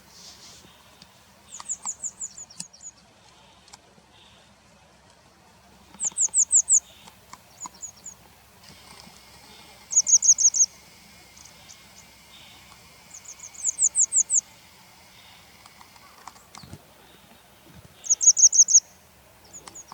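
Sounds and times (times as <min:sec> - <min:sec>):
bird calls sharp high notes: 0:09.5 - 0:15.4.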